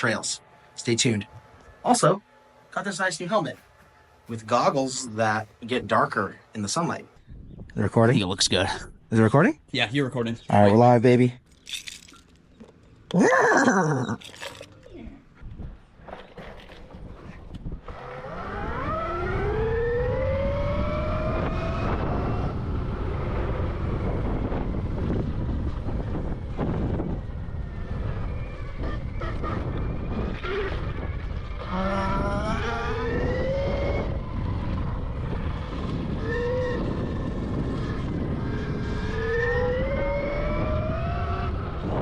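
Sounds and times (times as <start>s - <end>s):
wind on microphone: 7.2s - 9.1s, 15.0s - 42.0s
electric motor whining: 17.7s - 22.6s.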